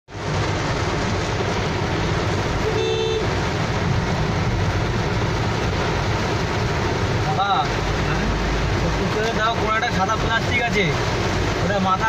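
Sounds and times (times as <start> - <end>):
engine and road rumble: 0.0 - 12.0
heavy rain on car roof: 0.1 - 12.0
car horn toot: 2.6 - 3.3.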